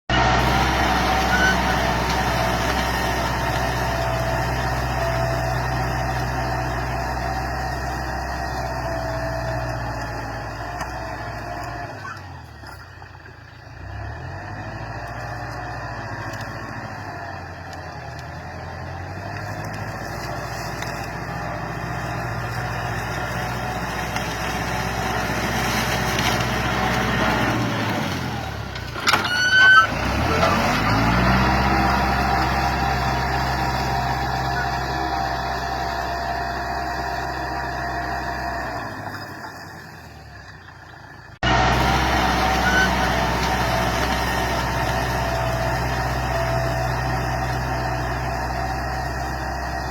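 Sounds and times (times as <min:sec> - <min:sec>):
tractor diesel engine running: 0:00.1 - 0:49.9
loud squeal: 0:00.2 - 0:03.5, 0:29.0 - 0:31.2, 0:41.7 - 0:44.8.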